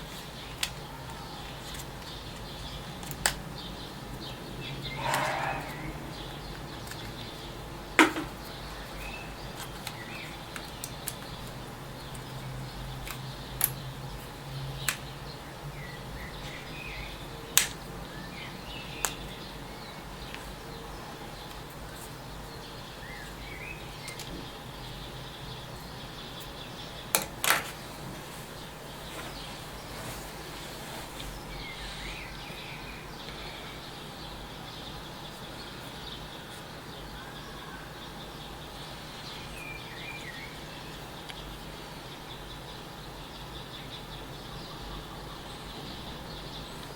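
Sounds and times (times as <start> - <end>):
steady low hum: 2.1 - 10.6
faint bird chirps: 3.6 - 7.6, 28.5 - 42.8.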